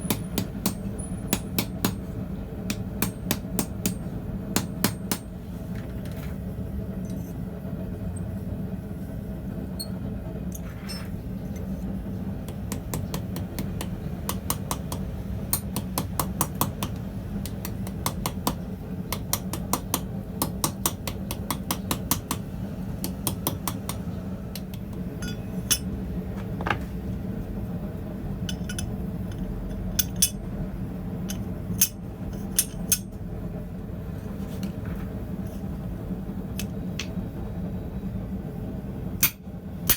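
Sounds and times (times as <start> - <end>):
steady low hum: 0.0 - 39.9
hammer tapping on steel anvil: 0.1 - 2.0, 12.5 - 22.4, 23.0 - 25.9.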